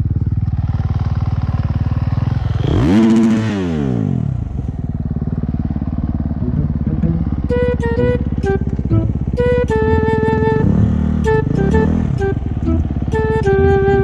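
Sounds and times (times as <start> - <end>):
motocross engines droning: 0.0 - 14.0
motocross bike revving past: 2.2 - 4.4.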